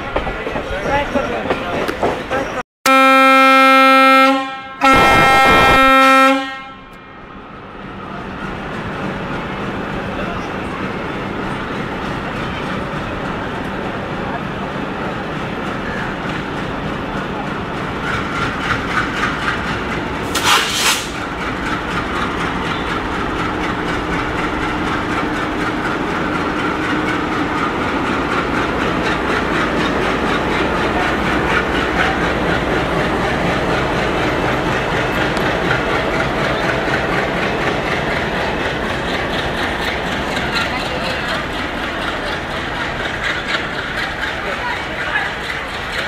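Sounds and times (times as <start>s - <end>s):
train rolling rumble: 0.0s - 2.6s, 6.9s - 46.0s.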